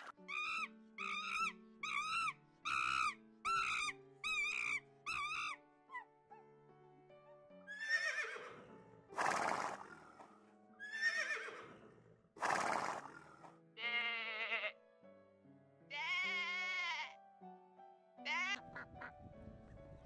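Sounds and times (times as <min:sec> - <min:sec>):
background music: 0:00.0 - 0:20.0
horse whinnying: 0:07.7 - 0:11.8, 0:12.4 - 0:13.2
horse snorting: 0:09.1 - 0:10.4, 0:11.3 - 0:13.6
bleats: 0:13.8 - 0:14.8, 0:15.9 - 0:17.2, 0:18.3 - 0:18.6.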